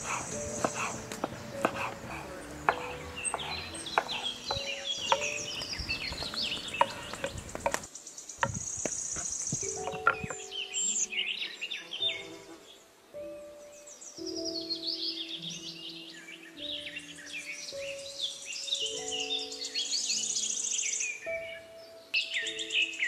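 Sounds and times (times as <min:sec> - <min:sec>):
knife chopping on wooden board: 0:00.0 - 0:09.0
birds chirping: 0:00.0 - 0:23.0.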